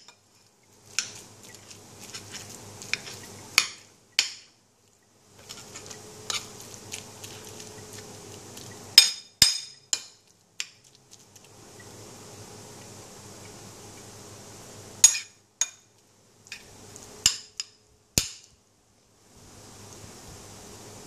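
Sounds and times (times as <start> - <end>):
utensils clinking against a dish: 7.3 - 10.7, 15.0 - 15.8.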